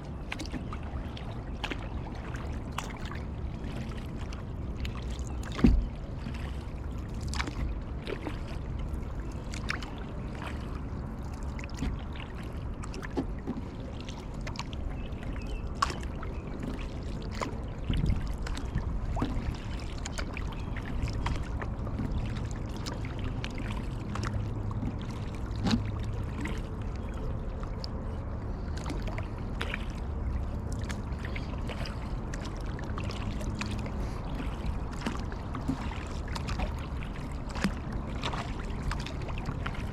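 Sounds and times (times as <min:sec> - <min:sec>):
paddle splashing and dripping: 0:00.0 - 0:39.9
steady low rumble: 0:00.0 - 0:39.9.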